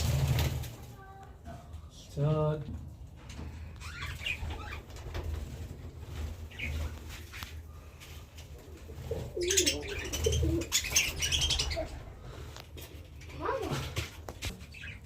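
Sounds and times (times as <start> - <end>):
pigeons cooing: 8.6 - 12.2
bird chirps: 9.4 - 11.9.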